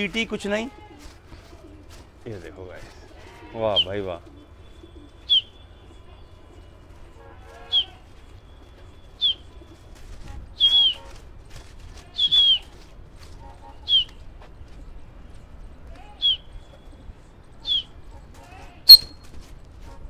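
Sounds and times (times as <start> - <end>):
bird chirping: 18.9 - 19.2.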